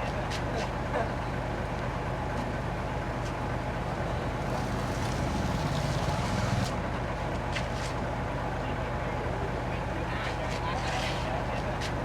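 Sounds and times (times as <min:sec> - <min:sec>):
heavy diesel engine droning: 0:03.7 - 0:07.0.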